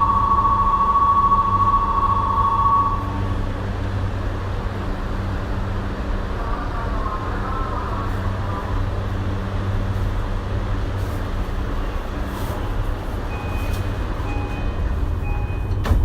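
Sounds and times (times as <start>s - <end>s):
short electronic beep: 0.0s - 3.2s, 13.3s - 15.7s
train equipment hum: 0.0s - 16.0s.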